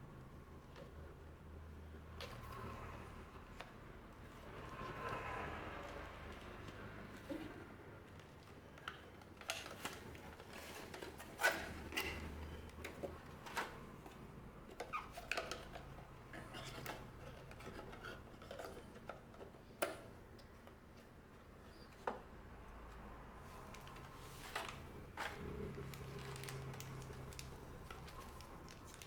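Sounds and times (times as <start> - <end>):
packaging clicks and crinkles: 23.5 - 29.0.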